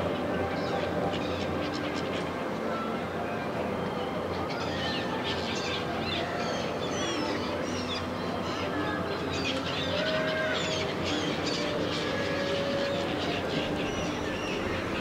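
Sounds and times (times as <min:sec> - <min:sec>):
outdoor background murmur: 0:00.0 - 0:15.0
birds chirping and calling: 0:04.2 - 0:15.0.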